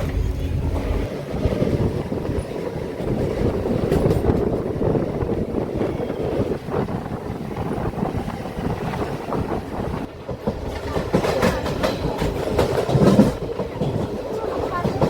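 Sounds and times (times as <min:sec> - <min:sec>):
train wheels clattering over rail joints: 0:02.0 - 0:06.8, 0:08.8 - 0:15.0.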